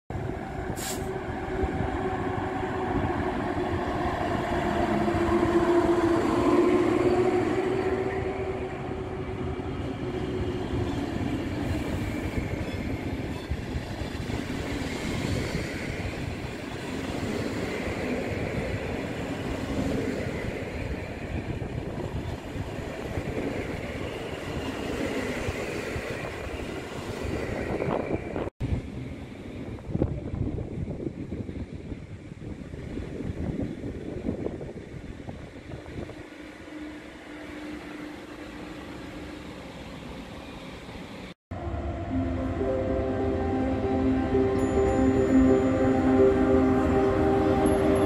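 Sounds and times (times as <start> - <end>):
locomotive humming tone: 0.2 - 15.1, 36.3 - 48.0.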